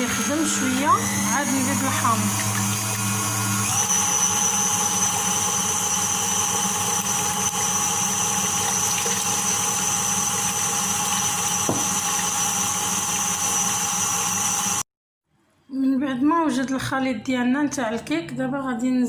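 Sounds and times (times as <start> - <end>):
blender churning liquid: 0.0 - 14.8.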